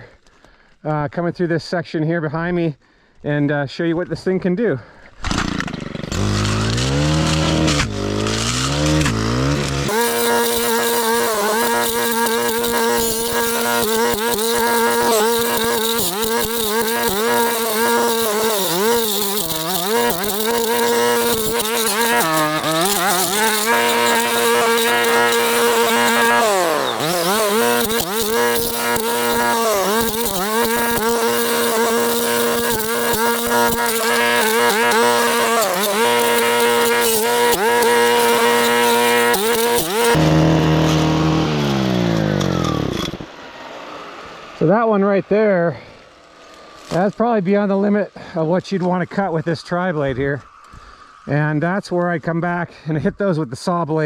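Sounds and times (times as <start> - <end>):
brushcutter engine running at high revs: 5.2 - 45.2, 45.8 - 47.2.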